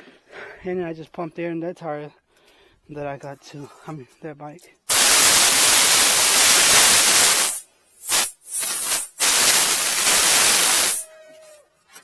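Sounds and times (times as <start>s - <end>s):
compressed air blowing: 4.9s - 11.1s.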